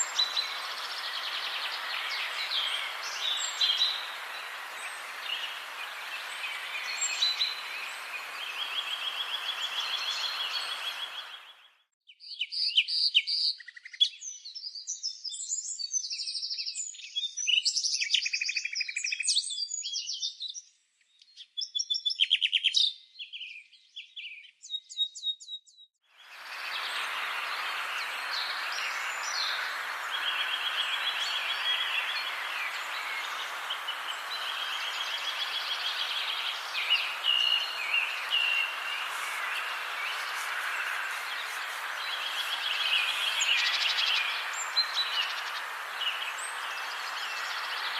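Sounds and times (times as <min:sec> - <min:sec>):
steady hiss: 0:00.0 - 0:11.5, 0:26.2 - 0:47.9
songbirds singing: 0:00.0 - 0:47.9.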